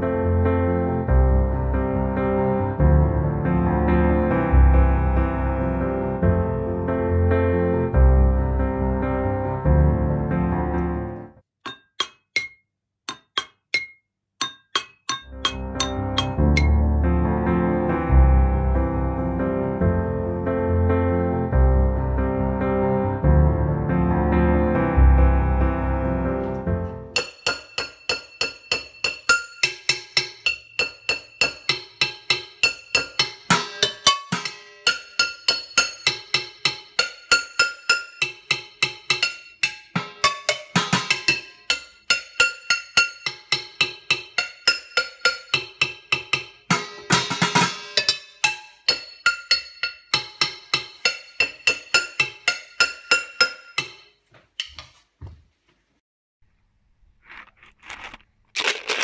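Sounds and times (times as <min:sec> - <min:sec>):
pans struck as drums: 0:13.1 - 0:16.8, 0:27.2 - 0:54.0.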